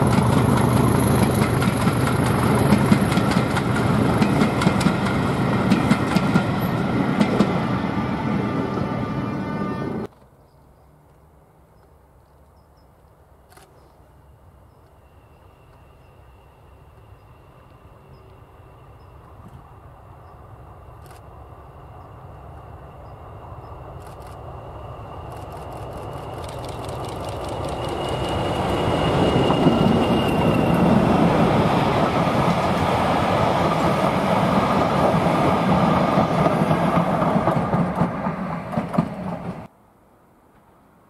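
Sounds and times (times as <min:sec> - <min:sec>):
train wheels clicking: 0:00.0 - 0:07.6, 0:25.2 - 0:39.7
diesel locomotive engine whine: 0:00.0 - 0:10.1, 0:14.1 - 0:39.7.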